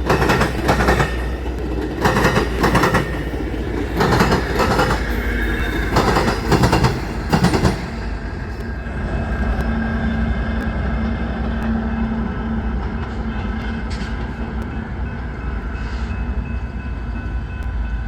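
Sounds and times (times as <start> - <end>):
train wheels clattering: 0.0 - 8.8
train rolling rumble: 0.0 - 18.0.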